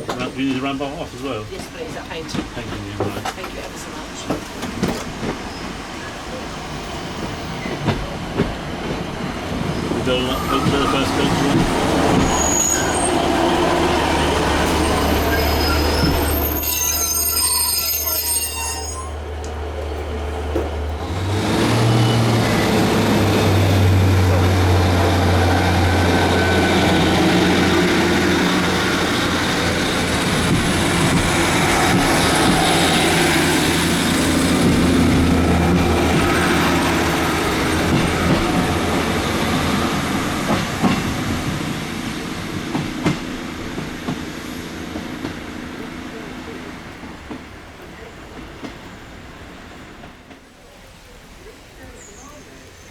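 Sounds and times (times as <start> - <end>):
diesel train engine drone: 0.0 - 50.3
high metallic squeal: 12.2 - 13.3, 14.7 - 19.2.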